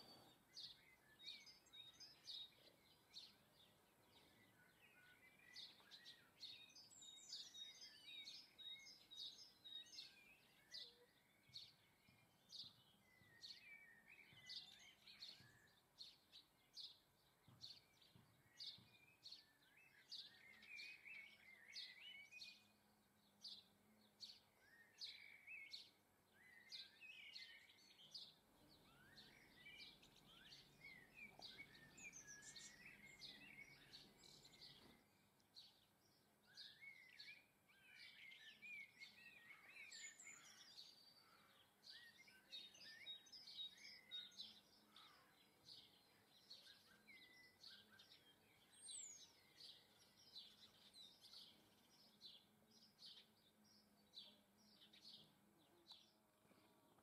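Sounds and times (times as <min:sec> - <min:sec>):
small birds chirping and twittering: 0:00.0 - 0:57.0.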